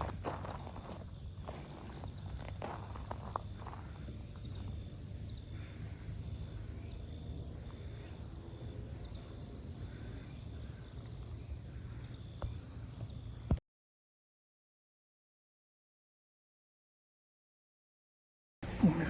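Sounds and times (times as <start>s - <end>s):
crickets trilling: 0.0s - 13.6s, 18.6s - 19.0s.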